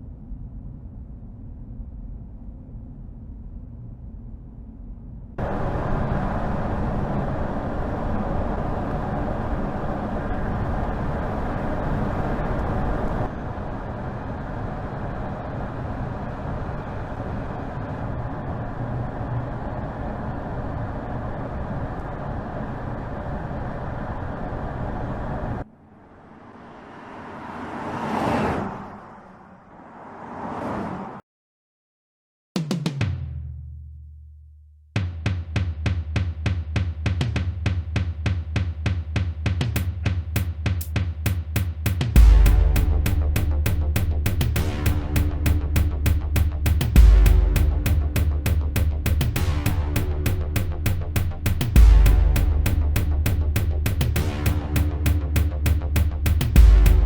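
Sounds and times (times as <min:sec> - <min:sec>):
car road and tyre noise: 0:00.0 - 0:31.2, 0:41.2 - 0:57.0
vehicles passing by: 0:05.4 - 0:31.2, 0:42.0 - 0:57.0.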